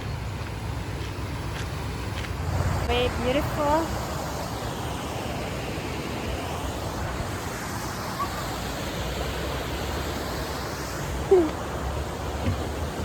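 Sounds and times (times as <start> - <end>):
river water rushing over rapids: 0.0 - 13.0.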